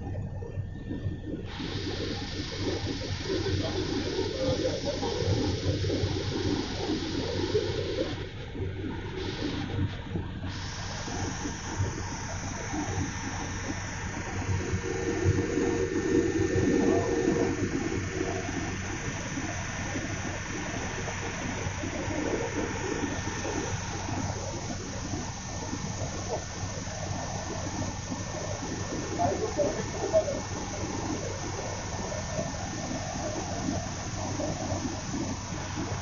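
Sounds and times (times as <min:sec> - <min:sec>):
helicopter cabin drone: 0:00.0 - 0:36.0
low even hum: 0:00.0 - 0:36.0.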